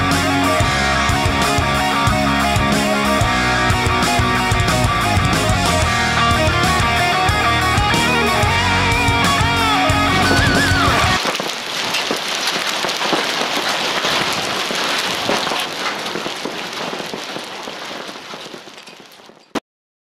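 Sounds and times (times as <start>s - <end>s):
electric guitar music: 0.0s - 11.2s
heavy rain falling: 0.0s - 19.6s.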